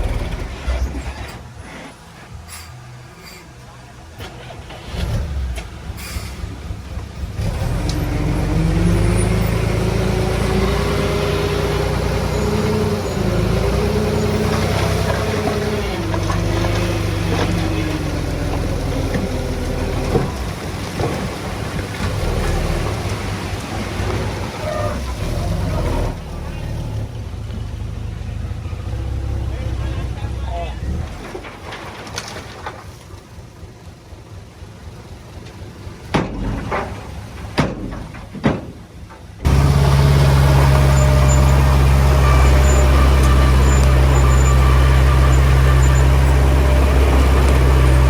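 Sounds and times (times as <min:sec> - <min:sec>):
heavy diesel engine under load: 0:00.0 - 0:48.0
high-pitched squeaks: 0:39.5 - 0:48.0.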